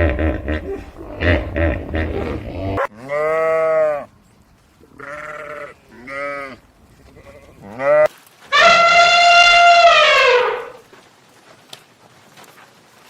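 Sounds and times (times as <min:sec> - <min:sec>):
goats bleating: 0:04.9 - 0:10.8.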